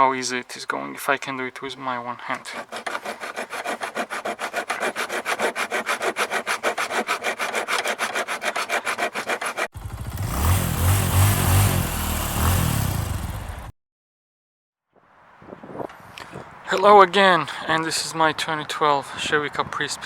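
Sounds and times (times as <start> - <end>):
rapid scraping strokes: 2.2 - 13.4
engine running and revving: 9.8 - 13.7.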